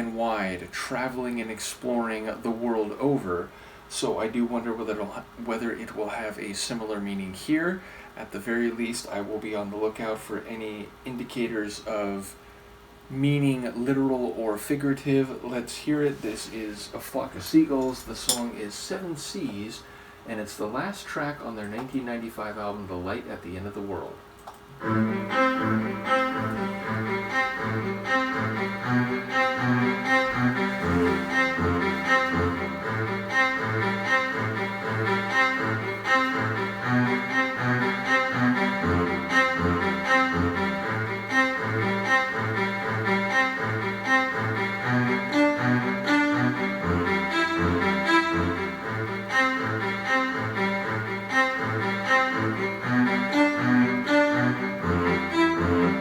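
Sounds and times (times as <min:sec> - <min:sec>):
string ensemble music: 0:24.7 - 0:56.0.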